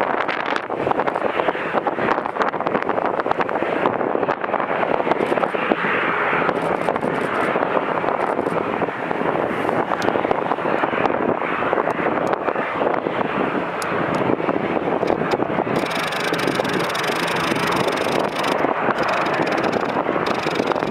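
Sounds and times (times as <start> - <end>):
jet engines roaring: 0.0 - 20.9
wind buffeting microphone: 0.0 - 20.9
microphone crackling: 15.1 - 20.9.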